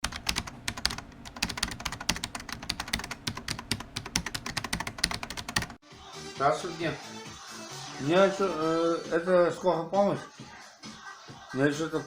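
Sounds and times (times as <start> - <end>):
rapid irregular clicks: 0.0 - 5.8.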